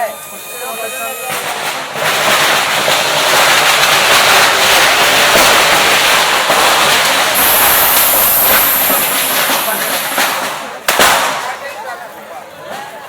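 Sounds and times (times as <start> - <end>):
firework hissing and crackling: 1.2 - 11.5.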